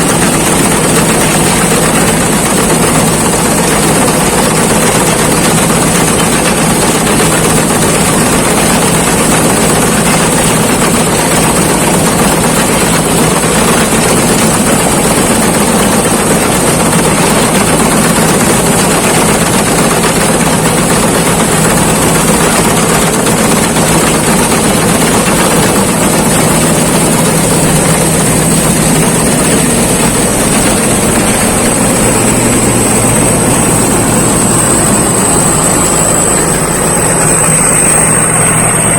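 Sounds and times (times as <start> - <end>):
combine harvester running: 0.0 - 38.9
thin high whine: 23.5 - 38.9.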